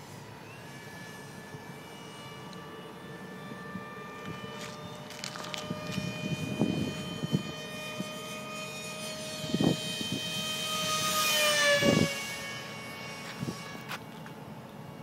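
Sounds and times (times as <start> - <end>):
electric ducted fan jet whining: 0.0 - 15.0
wind buffeting microphone: 4.8 - 8.2, 9.4 - 10.4.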